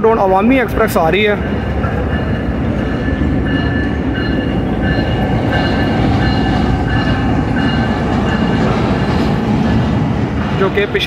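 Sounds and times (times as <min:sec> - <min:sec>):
train wheels and engine rumbling: 0:00.0 - 0:11.0.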